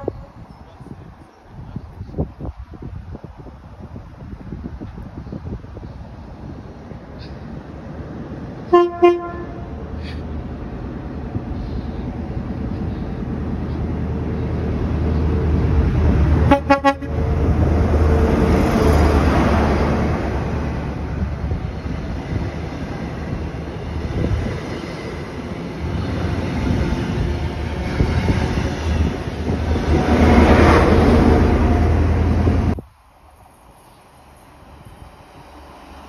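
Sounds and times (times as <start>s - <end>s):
train horn toot: 0.0s - 0.3s, 8.7s - 9.7s, 16.5s - 17.2s
train passing rumble: 0.0s - 36.0s.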